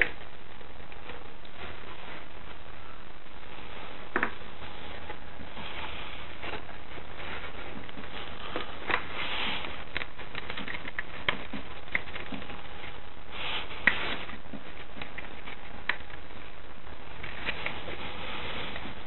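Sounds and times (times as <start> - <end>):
steady hiss: 0.0 - 19.0
hand tools clicking and tapping: 9.9 - 12.5.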